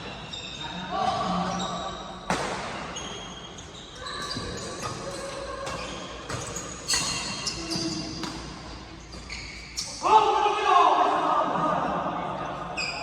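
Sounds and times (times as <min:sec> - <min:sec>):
shoes squeaking on court floor: 0:00.0 - 0:10.0.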